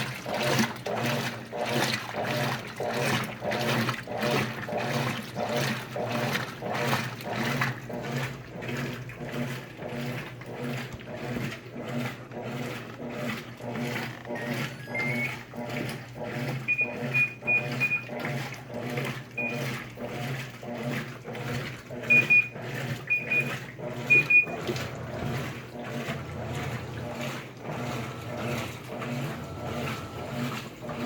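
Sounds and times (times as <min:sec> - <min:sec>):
washing machines churning: 0:00.0 - 0:31.0
short high electronic beeps: 0:14.4 - 0:15.4.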